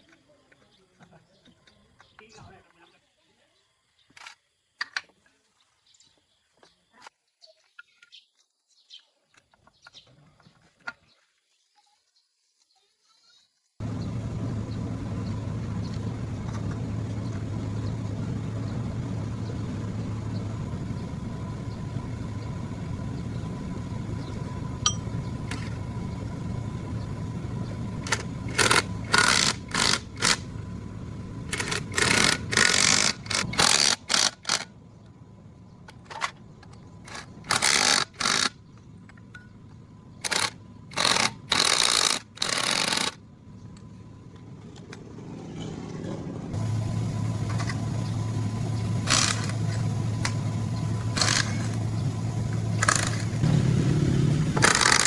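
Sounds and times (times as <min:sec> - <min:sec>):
small motor humming: 0:13.8 - 0:39.4, 0:40.1 - 0:44.9, 0:46.5 - 0:55.0.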